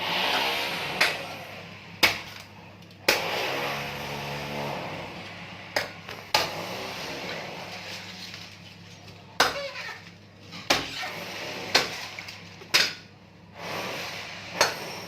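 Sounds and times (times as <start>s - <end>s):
blade striking coconut: 0.4s - 1.3s, 2.0s - 2.5s, 3.1s - 3.6s, 5.8s - 6.6s, 9.4s - 9.9s, 10.7s - 11.1s, 11.7s - 13.1s, 14.6s - 14.9s.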